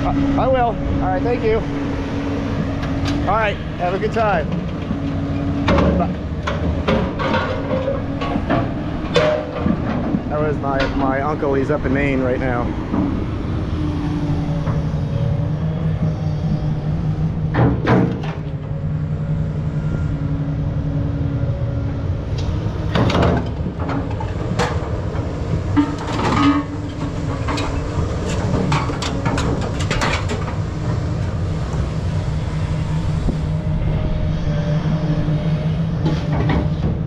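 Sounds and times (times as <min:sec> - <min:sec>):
engine humming: 0:00.0 - 0:37.0
scrap metal clanking: 0:05.6 - 0:11.4.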